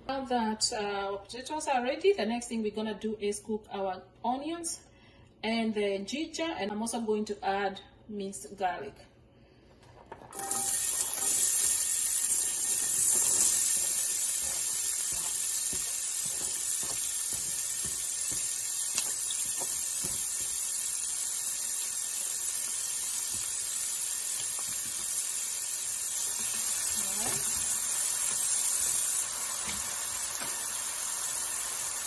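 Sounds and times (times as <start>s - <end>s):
onions sizzling in hot oil: 10.4s - 32.0s.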